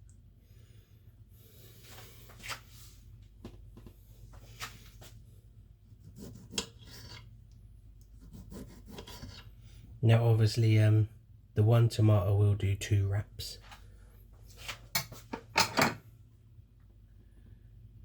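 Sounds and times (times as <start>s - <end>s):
knife cutting tomato: 6.0s - 7.3s, 8.0s - 9.5s.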